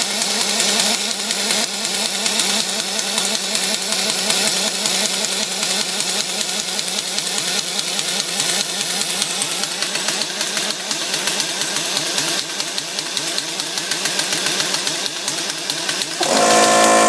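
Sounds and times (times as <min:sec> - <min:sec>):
impact wrench rattle: 0:07.8 - 0:17.0.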